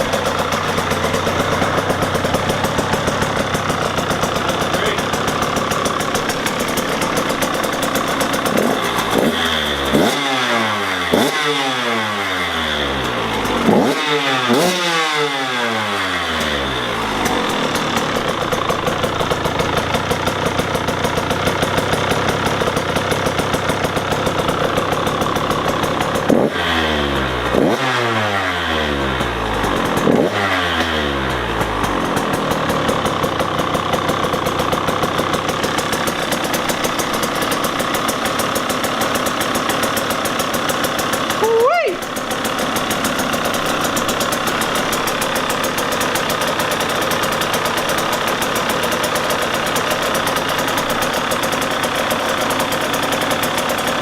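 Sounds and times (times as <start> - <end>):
two-stroke engine idling and revving: 0.0 - 54.0.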